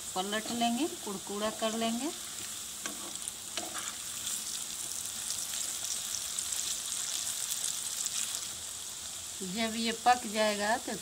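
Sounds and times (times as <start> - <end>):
fritter sizzling in oil: 0.0 - 11.0
oil bubbling: 0.8 - 9.5.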